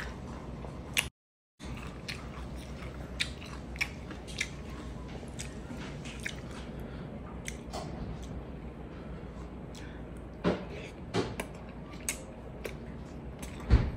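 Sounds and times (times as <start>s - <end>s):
low steady hum: 0.0s - 13.9s
close chewing: 0.9s - 8.4s.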